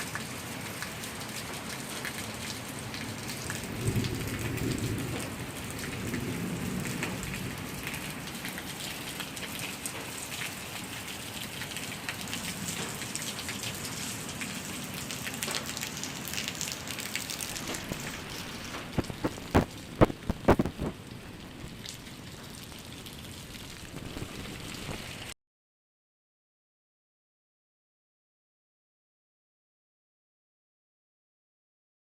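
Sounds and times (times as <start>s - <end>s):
rain falling: 0.0s - 25.4s.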